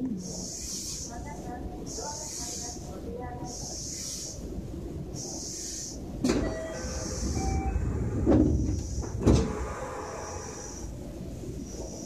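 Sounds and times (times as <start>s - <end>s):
high hiss: 0.0s - 12.0s
train interior rumble: 1.3s - 12.0s.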